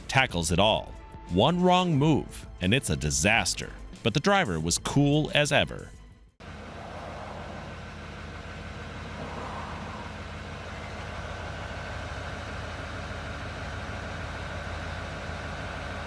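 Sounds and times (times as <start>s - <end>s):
faint steady whine: 6.4s - 16.0s
heavy truck engine running: 6.4s - 16.0s.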